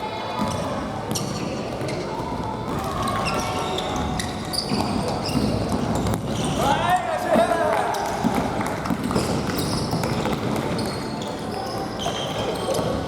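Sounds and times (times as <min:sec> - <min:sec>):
shoe squeaks: 0:03.1 - 0:06.8, 0:09.0 - 0:13.0.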